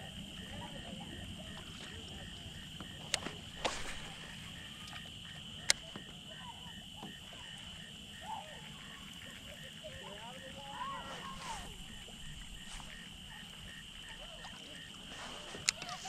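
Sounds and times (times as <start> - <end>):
insects buzzing: 0.0 - 16.0
pulsed insect call: 0.0 - 16.0
sharp clicks: 5.6 - 6.1, 15.6 - 16.0.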